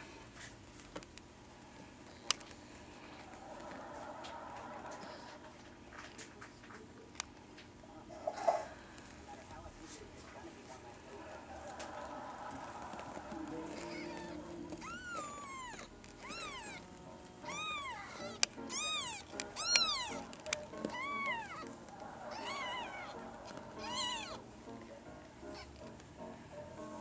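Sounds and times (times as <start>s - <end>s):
kitten meowing: 13.7s - 24.4s, 25.4s - 25.9s.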